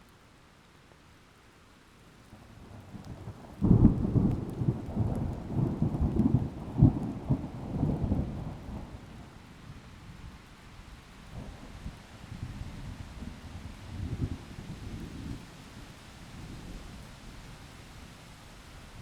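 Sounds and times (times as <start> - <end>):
rain: 0.0 - 19.0
thunder rumbling and cracking: 3.6 - 8.7.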